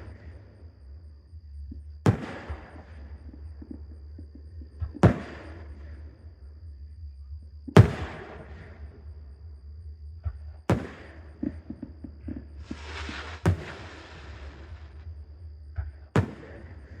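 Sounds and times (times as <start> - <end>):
small firework pop: 2.1 - 2.9, 5.0 - 5.6, 7.7 - 8.7, 10.7 - 15.0, 16.2 - 17.0
fireworks bursting: 2.1 - 3.1, 5.0 - 5.8, 7.8 - 8.7, 10.7 - 15.1, 16.2 - 17.0.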